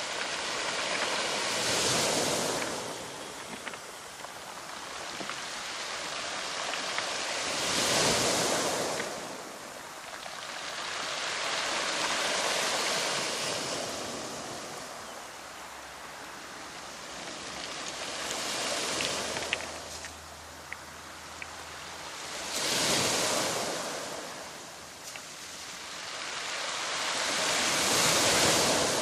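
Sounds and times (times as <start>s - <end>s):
ocean waves washing onto shore: 0.0s - 29.0s.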